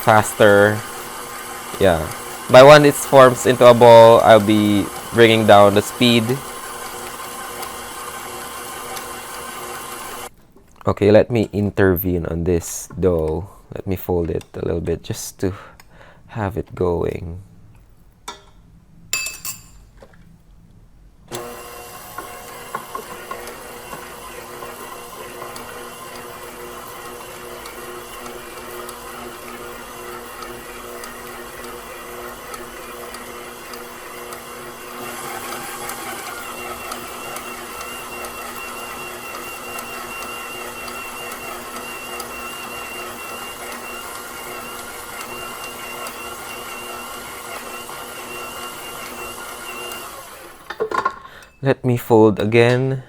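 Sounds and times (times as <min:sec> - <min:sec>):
stand mixer motor running: 0:00.0 - 0:10.3, 0:21.4 - 0:50.7.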